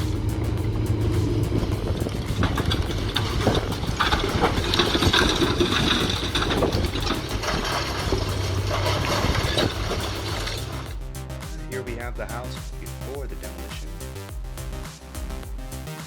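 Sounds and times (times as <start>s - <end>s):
heavy machine engine running: 0.0s - 11.0s
debris crunching and cracking: 0.9s - 11.0s.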